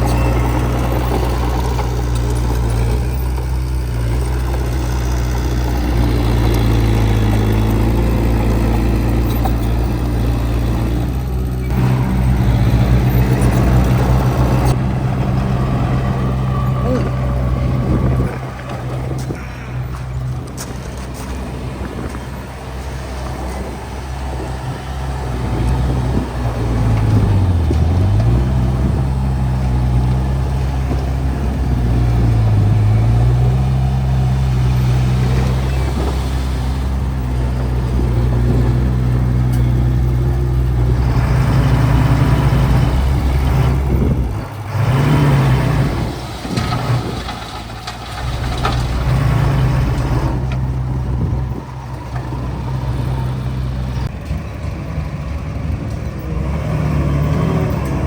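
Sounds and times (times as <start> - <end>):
clattering noise: 0.0 - 23.8, 33.3 - 53.2
diesel engine of heavy machinery: 0.0 - 58.0.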